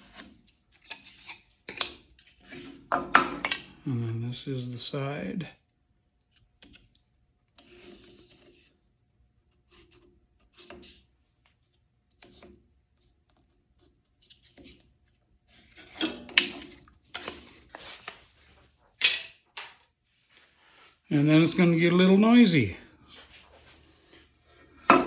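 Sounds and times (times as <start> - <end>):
wooden block rubbing and scraping: 14.2 - 19.2.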